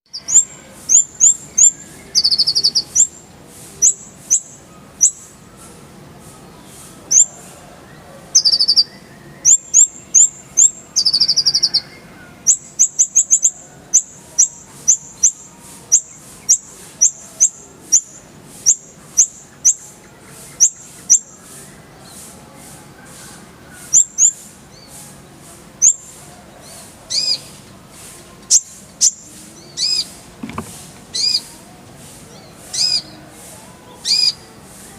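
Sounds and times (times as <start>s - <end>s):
sunbird singing high notes: 0.0s - 5.5s, 31.1s - 31.6s
buzzy bird trills: 0.1s - 7.5s, 8.3s - 22.2s, 23.8s - 25.0s, 25.8s - 27.6s, 28.5s - 30.2s, 31.1s - 31.6s, 32.4s - 33.2s, 34.0s - 34.5s.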